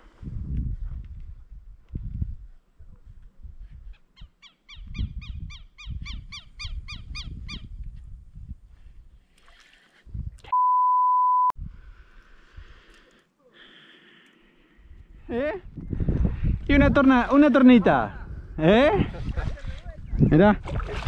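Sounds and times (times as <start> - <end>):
electronic beep: 10.5 - 11.5.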